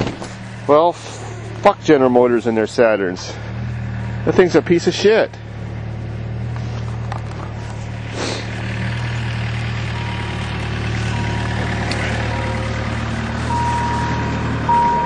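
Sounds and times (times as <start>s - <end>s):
vehicle engine idling: 0.0s - 15.0s
high electronic warning tone: 13.5s - 15.0s.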